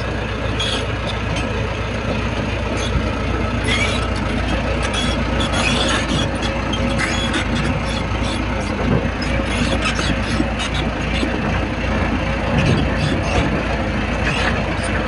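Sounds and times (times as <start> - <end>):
short metallic clicks and squeaks: 0.0 - 1.6, 3.6 - 11.3
bulldozer diesel engine running: 0.0 - 15.0.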